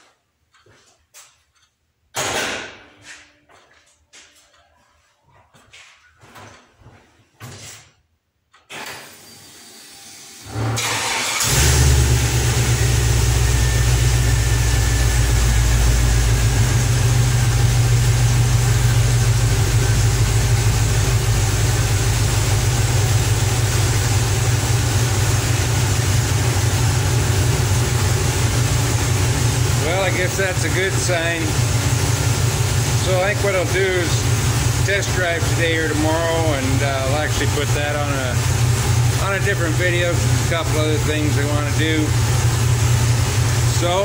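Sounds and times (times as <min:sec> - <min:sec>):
car engine idling: 0:10.5 - 0:44.0.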